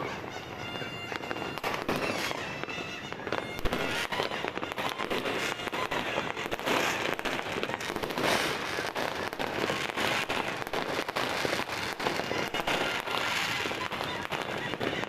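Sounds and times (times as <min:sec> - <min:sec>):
fireworks and firecrackers crackling: 0:00.0 - 0:15.0.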